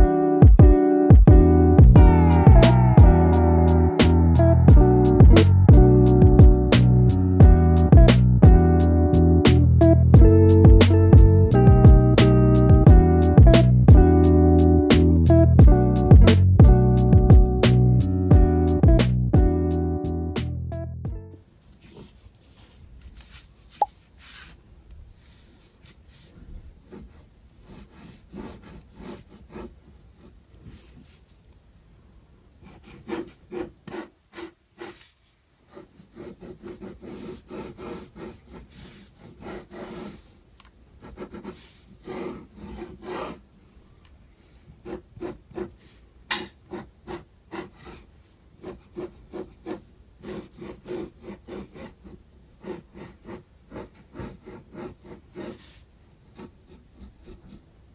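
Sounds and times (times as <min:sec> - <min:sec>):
pencil scratching on paper: 0:21.8 - 0:24.6, 0:25.2 - 0:31.5, 0:32.6 - 0:43.4, 0:44.3 - 0:57.9.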